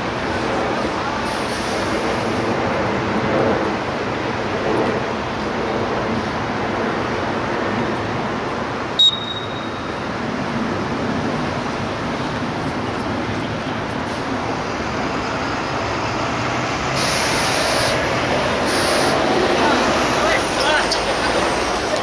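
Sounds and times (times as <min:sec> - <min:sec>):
distant traffic: 0:00.0 - 0:22.0
wind: 0:00.0 - 0:22.0
referee's whistle blast: 0:09.0 - 0:09.9.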